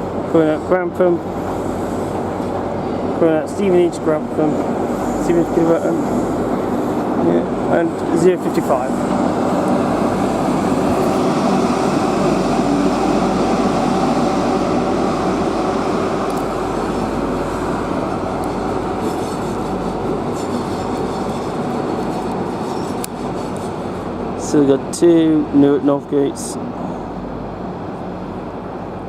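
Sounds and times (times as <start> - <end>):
diesel train engine droning: 0.0 - 29.0.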